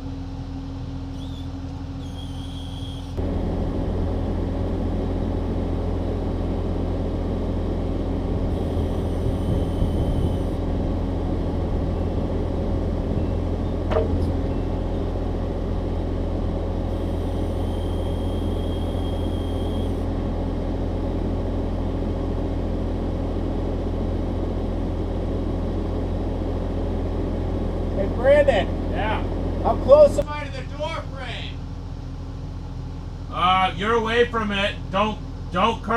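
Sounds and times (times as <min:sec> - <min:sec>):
diesel engine running: 0:00.0 - 0:35.9
faint high whine: 0:08.5 - 0:10.6, 0:16.9 - 0:20.1.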